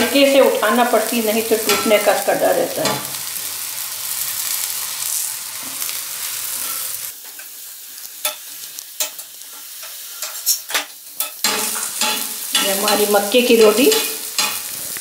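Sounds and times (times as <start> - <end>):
flatbread sizzling in ghee: 0.0 - 15.0
spatula scraping and tapping pan: 1.6 - 2.2, 8.2 - 15.0.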